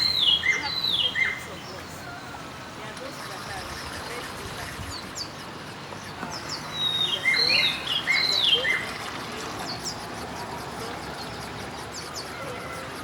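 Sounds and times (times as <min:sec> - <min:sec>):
bird singing whistled notes: 0:00.0 - 0:02.2, 0:03.1 - 0:13.0
birds chirping high: 0:00.0 - 0:13.0.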